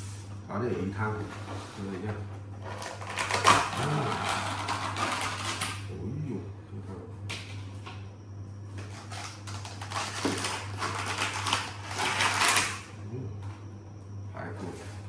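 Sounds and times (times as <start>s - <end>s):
steady low hum: 0.0s - 15.0s
food packaging rustling: 8.8s - 12.8s.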